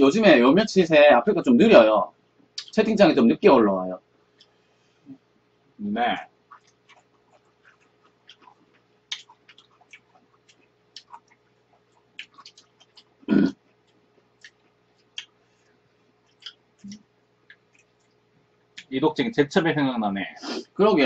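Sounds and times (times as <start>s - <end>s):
chewing and lip smacks: 6.4s - 18.9s.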